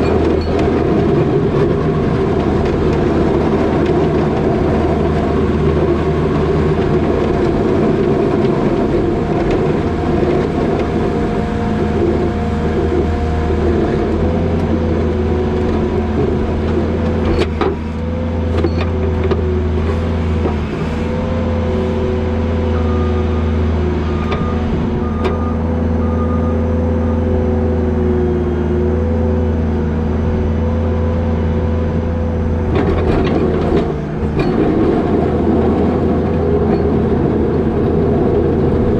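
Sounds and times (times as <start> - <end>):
diesel engine running: 0.0 - 38.9
beeps: 24.1 - 27.2.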